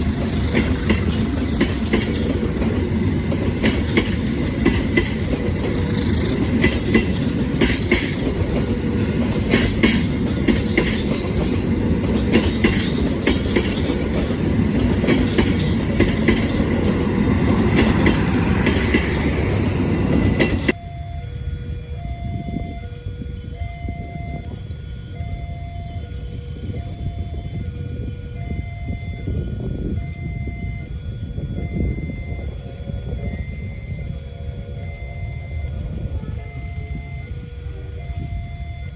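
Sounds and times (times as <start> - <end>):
wheels clicking over rail joints: 0.0 - 20.8
train wheels rumbling on rail: 0.0 - 38.9
repeating electronic tones: 19.2 - 38.9.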